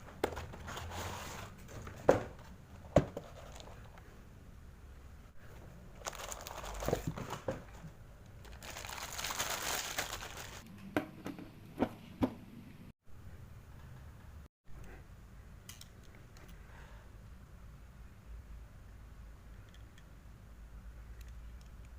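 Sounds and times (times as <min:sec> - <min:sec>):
packaging crinkling: 0:06.0 - 0:07.3, 0:08.4 - 0:10.6.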